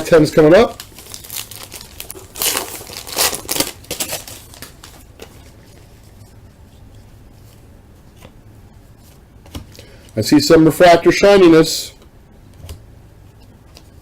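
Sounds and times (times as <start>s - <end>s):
plastic wrapper crinkling and tearing: 0.5s - 5.1s.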